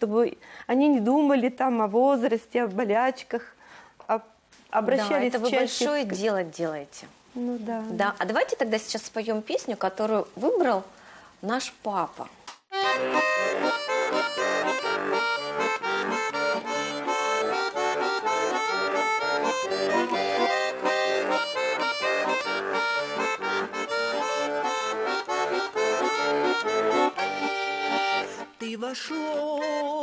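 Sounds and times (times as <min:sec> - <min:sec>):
accordion playing: 0:05.0 - 0:05.9, 0:12.7 - 0:30.0.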